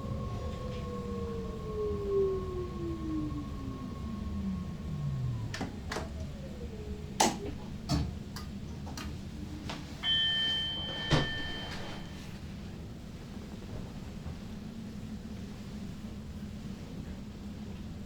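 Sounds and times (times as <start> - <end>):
train traction whine: 0.0 - 17.8
two-tone electronic beep: 10.0 - 12.2.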